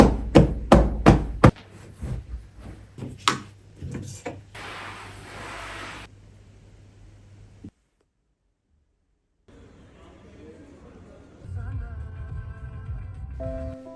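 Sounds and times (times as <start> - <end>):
loud knocks and thumps: 0.0 - 1.6
steady hiss: 4.6 - 7.7.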